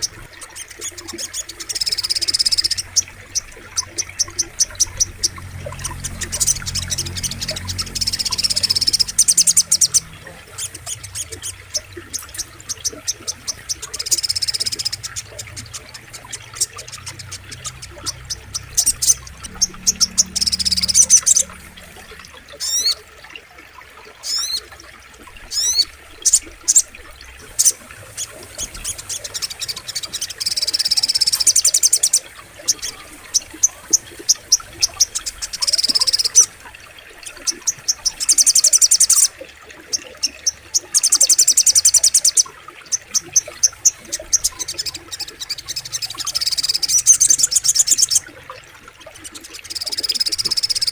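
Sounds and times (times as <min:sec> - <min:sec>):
bird singing high trills: 0:00.0 - 0:23.0.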